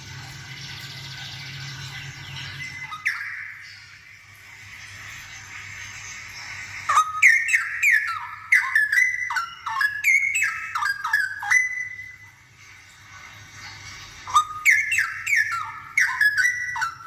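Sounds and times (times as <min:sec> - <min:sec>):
bird singing whistled notes: 0:02.0 - 0:04.0, 0:06.9 - 0:12.3, 0:14.3 - 0:17.0.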